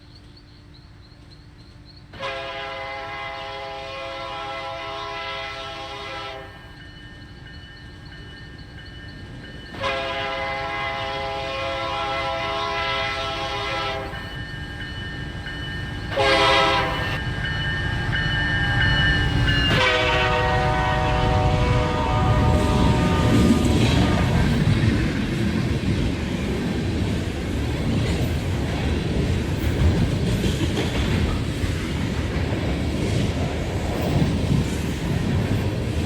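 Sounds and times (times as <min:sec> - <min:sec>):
train rumble: 0:00.0 - 0:36.0
locomotive air horn blasts: 0:02.2 - 0:06.6, 0:09.8 - 0:14.4, 0:16.1 - 0:17.2, 0:19.7 - 0:24.6.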